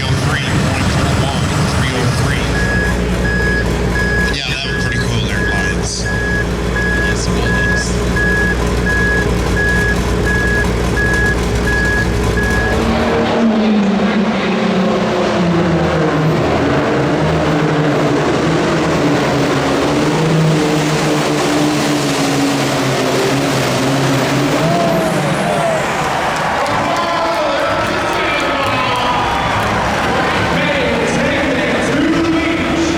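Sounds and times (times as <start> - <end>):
heavy engine rumble: 0.0 - 32.9
vehicle engine running hard: 0.0 - 32.9
backup alarm beeping: 1.3 - 13.1.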